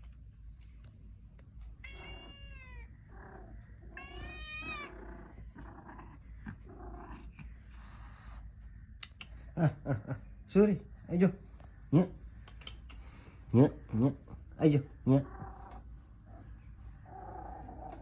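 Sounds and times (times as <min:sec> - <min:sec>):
cat meowing: 0:01.8 - 0:05.3.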